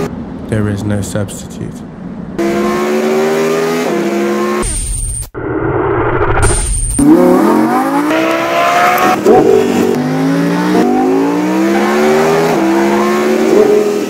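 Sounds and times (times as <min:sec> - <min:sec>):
car engine accelerating hard: 0:02.4 - 0:04.6, 0:07.0 - 0:14.0.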